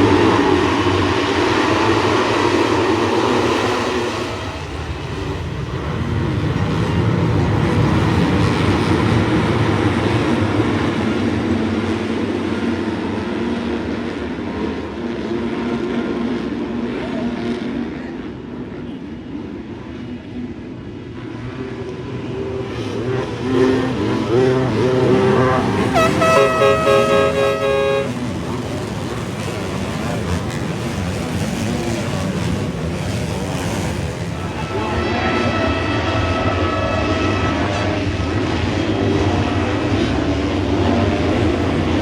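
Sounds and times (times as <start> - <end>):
dirt bike engines racing: 21.2 - 42.0.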